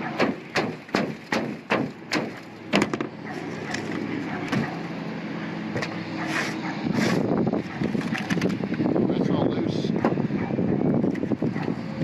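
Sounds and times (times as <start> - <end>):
hand tool knocking on metal roof: 0.2 - 3.1.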